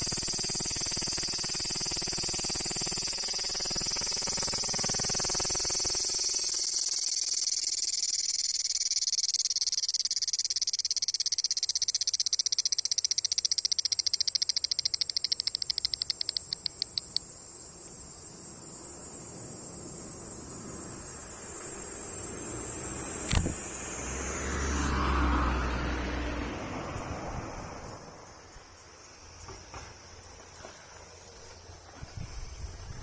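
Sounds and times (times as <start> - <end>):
cicada singing: 0.0 - 33.0
sharp click: 12.2 - 17.2, 23.3 - 23.6.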